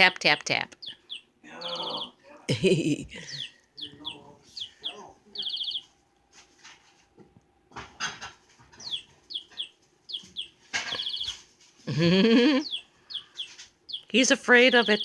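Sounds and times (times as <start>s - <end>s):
toy bird chirping: 0.0s - 2.2s, 3.3s - 5.9s, 8.8s - 11.4s, 12.5s - 15.0s.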